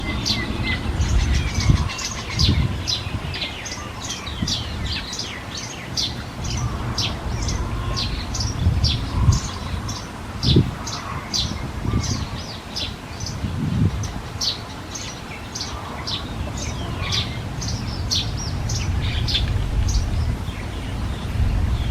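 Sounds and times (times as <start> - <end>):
bird chirping: 0.0 - 21.9
low rumble: 16.4 - 21.9.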